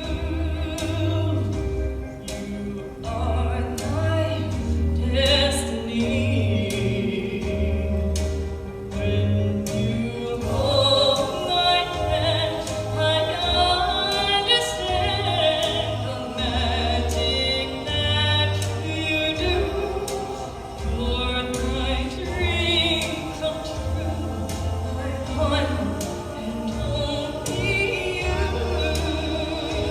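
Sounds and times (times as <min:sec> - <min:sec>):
person singing with vibrato: 0:00.0 - 0:29.9.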